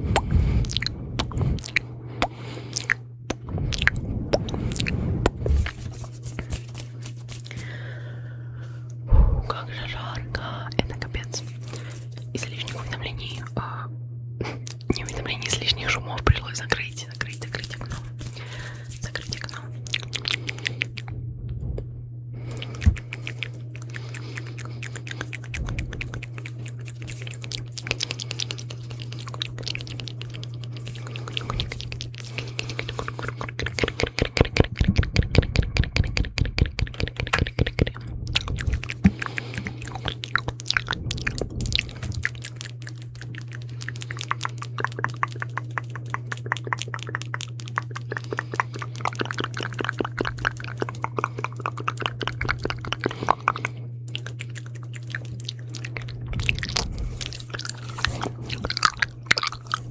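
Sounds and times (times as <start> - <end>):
wet mouth clicks and smacks: 0.0 - 7.8, 9.5 - 13.6, 14.6 - 21.1, 22.5 - 59.9
low steady hum: 0.0 - 59.9.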